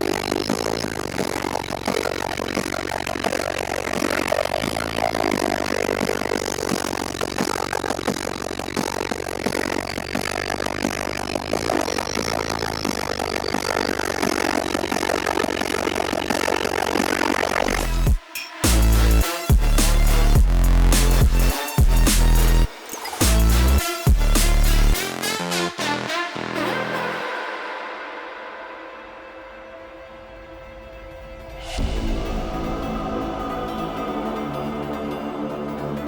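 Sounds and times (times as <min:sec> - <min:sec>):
loud subwoofer bass: 0:17.4 - 0:26.6.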